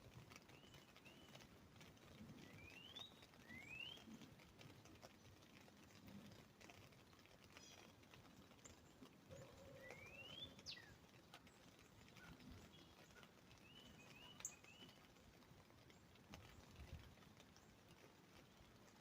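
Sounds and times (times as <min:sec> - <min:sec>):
rain dripping on an umbrella: 0:00.0 - 0:19.0
bird chirps: 0:02.4 - 0:04.1, 0:09.3 - 0:11.0, 0:12.2 - 0:15.0.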